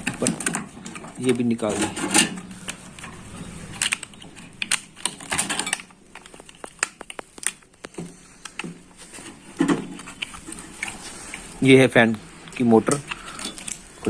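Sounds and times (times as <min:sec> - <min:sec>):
metal parts clicking and clinking: 0:00.0 - 0:07.6, 0:12.5 - 0:13.9.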